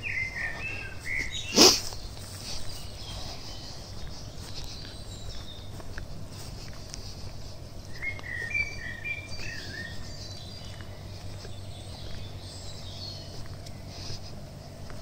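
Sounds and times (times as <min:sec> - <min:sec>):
songbird whistled notes: 0:00.0 - 0:02.1, 0:07.9 - 0:10.9
high bird chirps: 0:00.0 - 0:06.0, 0:07.9 - 0:13.9
steady low hum: 0:00.0 - 0:15.0.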